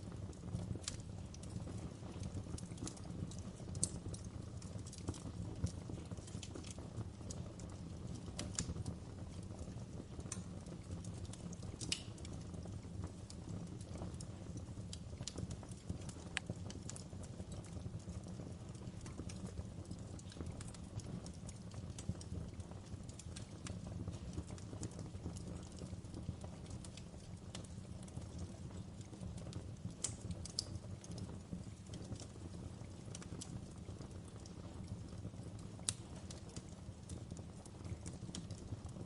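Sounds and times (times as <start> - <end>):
campfire wood crackling: 0.0 - 39.0.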